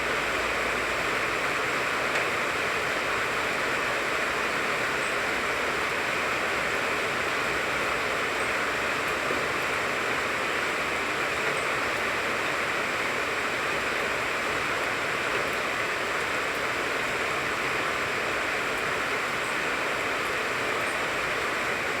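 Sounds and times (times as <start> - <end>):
rain falling on a tree: 0.0 - 22.0.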